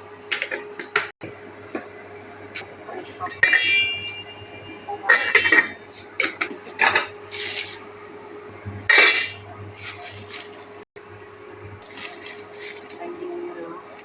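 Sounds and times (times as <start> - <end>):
utensils and dishes clinking: 3.3 - 7.8, 8.9 - 10.8
rustling: 9.8 - 10.8, 11.8 - 13.2.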